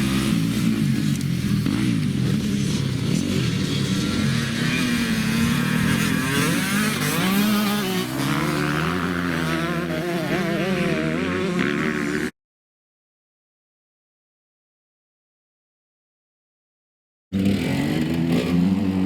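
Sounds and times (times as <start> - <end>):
dirt bike engine revving: 0.0 - 12.3, 17.4 - 19.0.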